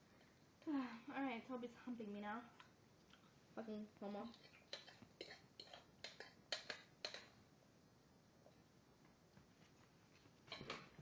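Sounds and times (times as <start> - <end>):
soft rustle: 9.3 - 11.0.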